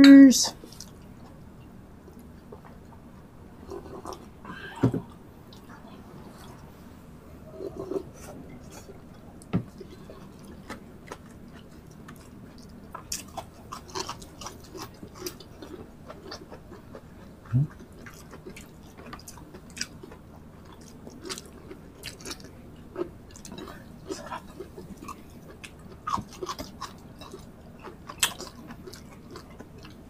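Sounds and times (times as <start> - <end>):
chewing and lip-smacking: 7.7 - 30.0.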